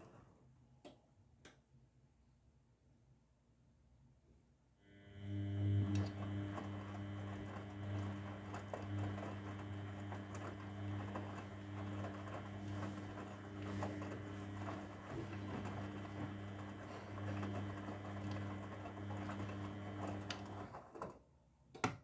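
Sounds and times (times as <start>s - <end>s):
washing machine motor hum: 4.9s - 21.2s.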